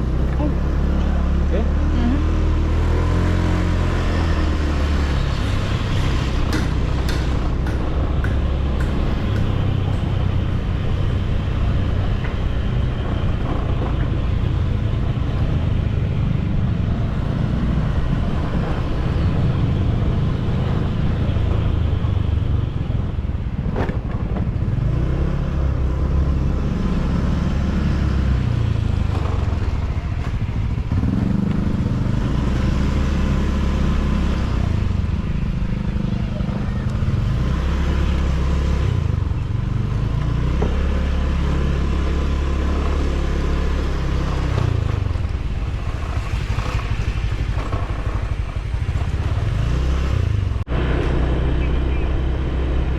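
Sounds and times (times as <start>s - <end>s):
motorcycle engine running: 26.7s - 52.9s.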